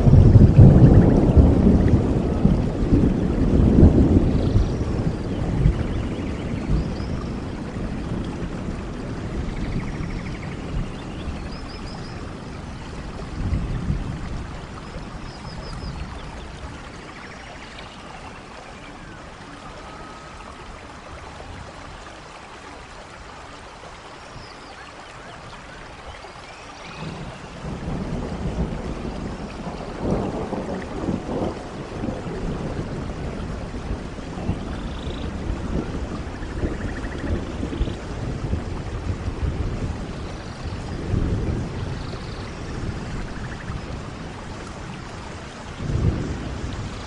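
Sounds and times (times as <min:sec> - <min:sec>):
rolling thunder: 0:00.0 - 0:17.4, 0:26.8 - 0:47.0
steady rain: 0:00.0 - 0:47.0.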